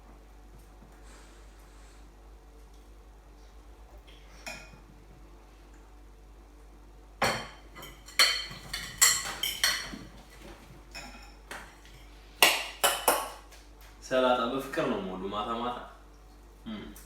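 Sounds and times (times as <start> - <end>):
cutlery clinking against dishes: 7.2 - 10.1.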